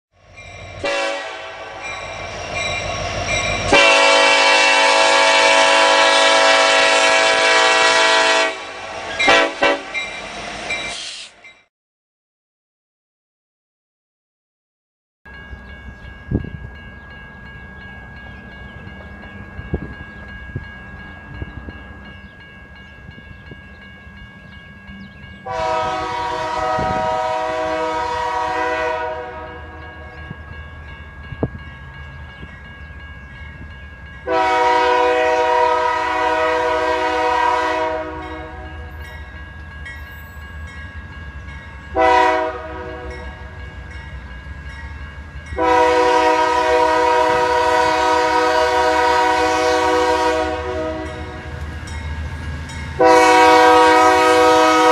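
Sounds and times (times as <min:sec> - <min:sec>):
train rumbling: 0:00.2 - 0:11.7, 0:15.3 - 0:54.9
locomotive air horn blasts: 0:00.8 - 0:02.0, 0:03.6 - 0:10.0, 0:25.4 - 0:30.0, 0:34.2 - 0:38.9, 0:42.0 - 0:43.4, 0:45.6 - 0:51.6, 0:53.0 - 0:54.9.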